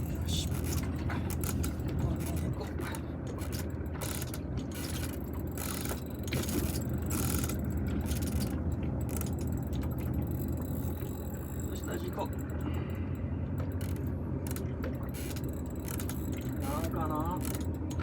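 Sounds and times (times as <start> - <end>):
steady low rumble: 0.0 - 18.0
fishing reel gear clicking: 3.4 - 12.8, 13.6 - 18.0.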